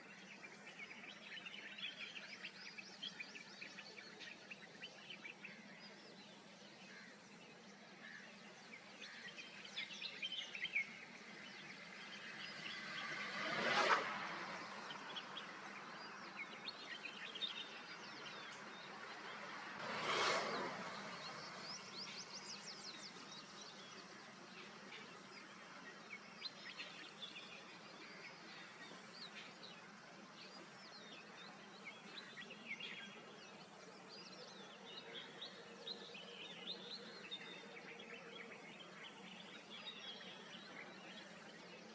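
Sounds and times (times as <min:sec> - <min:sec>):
small birds chirping: 0:00.0 - 0:41.9
loud passing sound: 0:11.8 - 0:16.1, 0:19.2 - 0:22.7.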